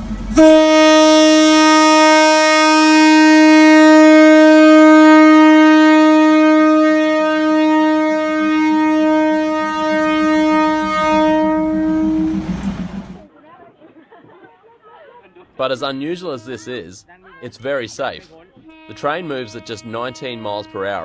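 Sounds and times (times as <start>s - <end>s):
train horn blast: 0.2s - 13.3s, 16.0s - 16.9s, 18.7s - 21.0s.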